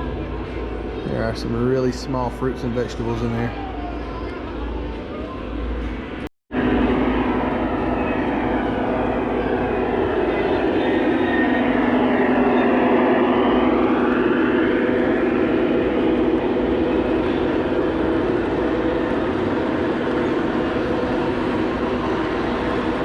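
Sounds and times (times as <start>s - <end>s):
model trains rumbling on track: 7.2s - 23.0s.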